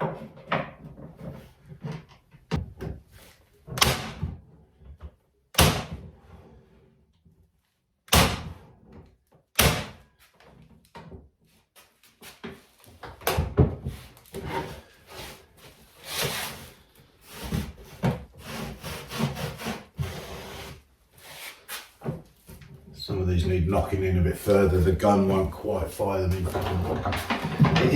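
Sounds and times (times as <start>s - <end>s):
knocks and scraping of wood: 0.0s - 6.9s, 8.2s - 27.9s
tack gun firing: 3.8s - 4.2s, 5.6s - 5.9s, 8.1s - 8.5s, 9.6s - 10.0s.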